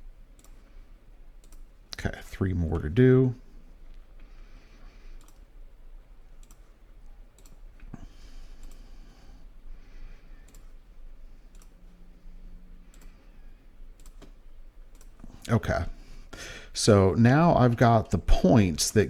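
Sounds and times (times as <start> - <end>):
faint steady hum: 0.0 - 19.0
computer mouse clicking: 0.3 - 0.8, 1.4 - 1.7, 5.1 - 5.5, 6.4 - 7.9, 8.5 - 8.9, 10.2 - 10.8, 11.4 - 11.8, 12.9 - 15.3.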